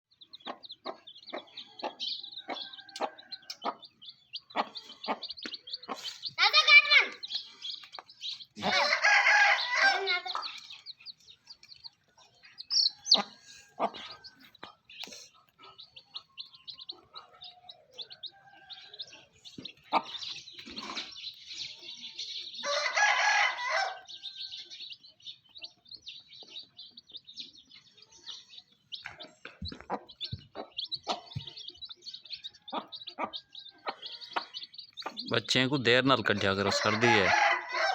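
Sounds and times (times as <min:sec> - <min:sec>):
baby chicks peeping: 0:00.1 - 0:37.9
chicken drawn-out call: 0:08.6 - 0:10.4, 0:22.6 - 0:24.5, 0:36.2 - 0:37.9.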